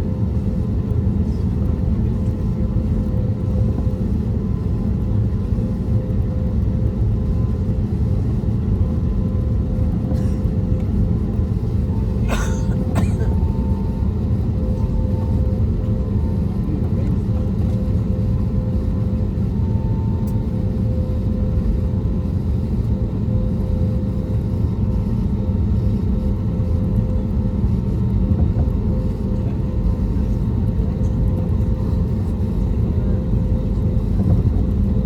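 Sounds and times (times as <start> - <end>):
aircraft cabin rumble: 0.0 - 35.0.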